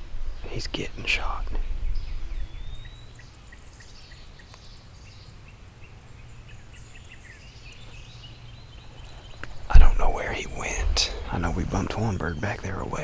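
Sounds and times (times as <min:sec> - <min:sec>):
small birds chirping: 0:00.0 - 0:13.0
low outdoor rumble: 0:09.1 - 0:13.0.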